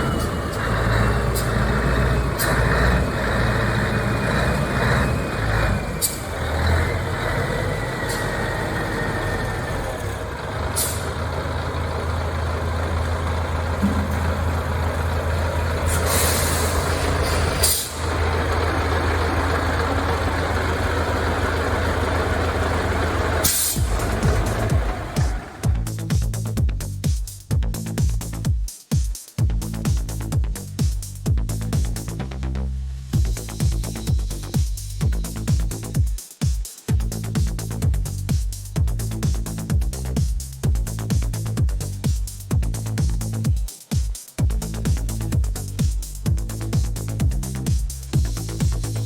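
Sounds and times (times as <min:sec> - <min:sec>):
air brake hiss: 0:00.0 - 0:25.7
diesel truck engine idling: 0:00.0 - 0:26.5.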